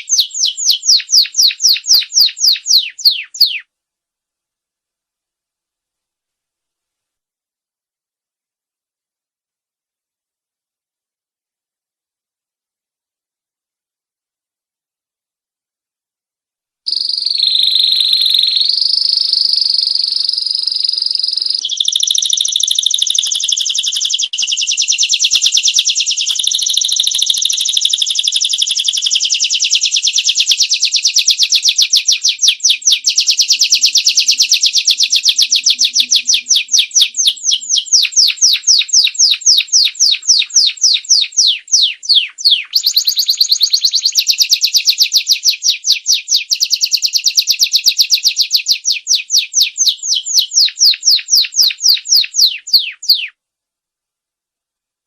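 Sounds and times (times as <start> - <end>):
canary singing trills: 0.0 - 3.7, 16.9 - 53.4.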